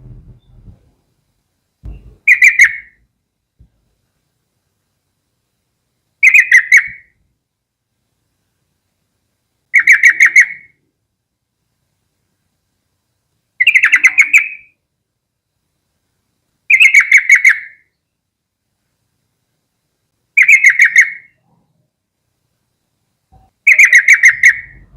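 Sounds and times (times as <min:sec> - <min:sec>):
bird singing bubbly phrases: 0:13.6 - 0:14.7, 0:23.7 - 0:24.9.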